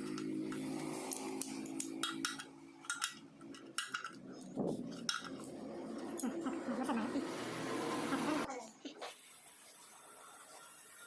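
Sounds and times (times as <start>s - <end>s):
metal hand tools clinking: 0.0s - 5.5s.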